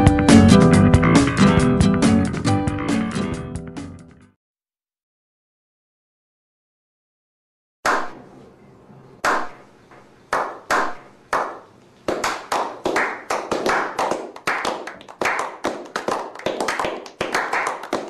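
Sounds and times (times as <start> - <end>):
group of men clapping: 10.3 - 18.0.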